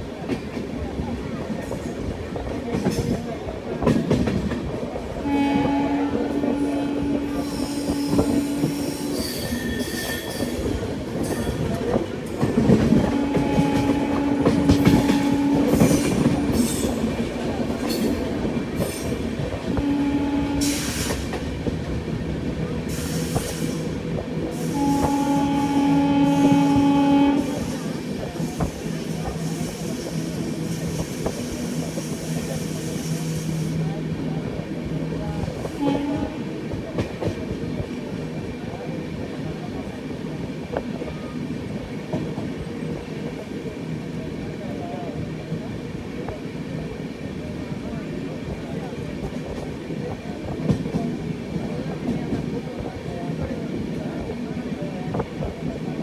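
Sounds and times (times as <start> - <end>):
train wheels clattering on track: 0.0 - 56.0
locomotive horn: 5.2 - 10.0, 12.6 - 17.1, 19.6 - 21.5, 23.4 - 28.2, 35.5 - 36.6.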